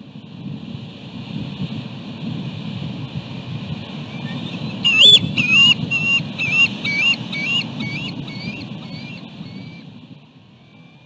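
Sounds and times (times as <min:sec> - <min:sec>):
wind and surf rumble: 0:00.0 - 0:11.0
bird calling shrill notes: 0:04.2 - 0:09.8.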